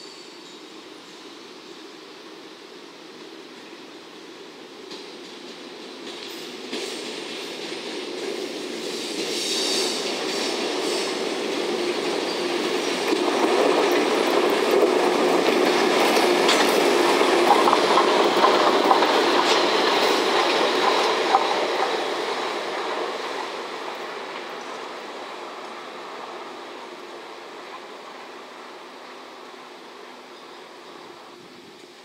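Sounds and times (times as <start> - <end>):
train wheels clattering over rail joints: 4.8 - 25.0.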